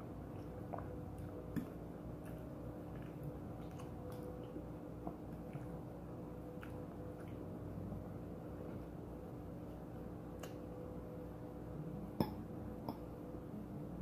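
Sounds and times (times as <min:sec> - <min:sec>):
steady low hum: 0:00.0 - 0:14.0
person chewing food: 0:00.1 - 0:07.8.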